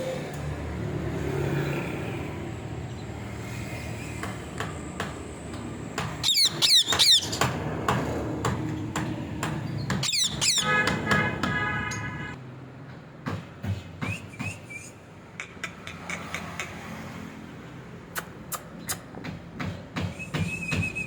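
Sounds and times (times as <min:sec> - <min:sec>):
parrot screeching: 0:06.2 - 0:07.4, 0:10.0 - 0:10.9.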